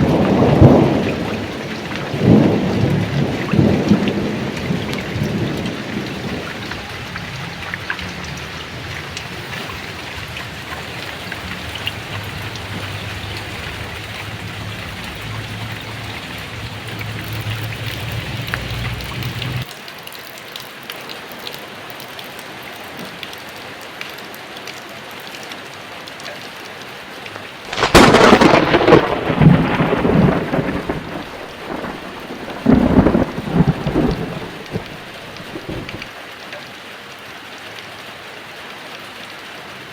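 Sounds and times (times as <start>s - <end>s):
low thunder rumble: 0.0s - 19.6s, 27.7s - 36.1s
sharp thunderclap: 0.0s - 19.6s, 27.7s - 36.1s
heavy rain falling: 0.0s - 39.9s.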